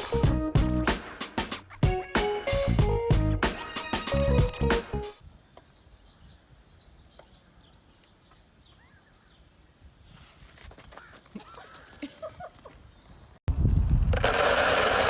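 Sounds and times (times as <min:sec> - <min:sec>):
music with plucked-string beat: 0:00.0 - 0:05.1
faint bird chirps: 0:05.4 - 0:10.3.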